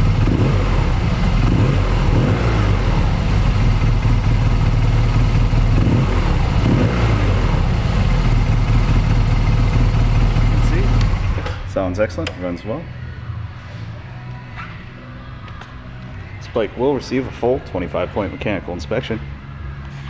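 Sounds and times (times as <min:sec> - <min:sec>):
motorcycle engine idling: 0:00.0 - 0:11.7.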